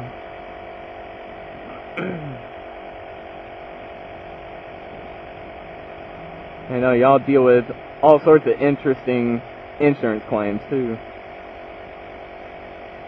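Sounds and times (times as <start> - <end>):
machine hum: 0.0 - 13.0
short vocal hm: 1.6 - 2.5.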